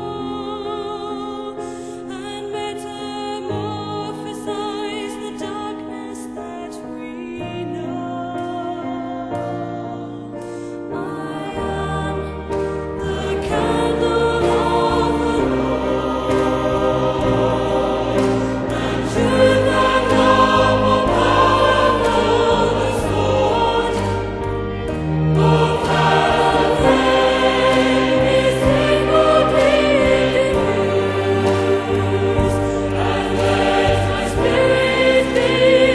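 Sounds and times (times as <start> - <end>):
backing music: 8.3 - 35.9
choir singing: 10.9 - 35.9.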